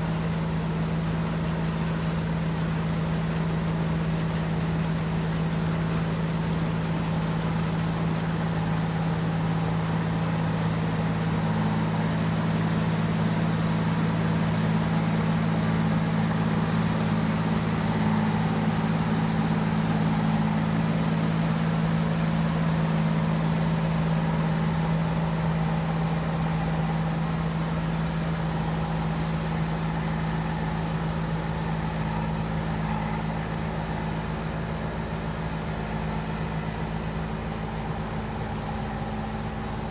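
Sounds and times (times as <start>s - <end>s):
combine harvester engine running: 0.0s - 39.9s.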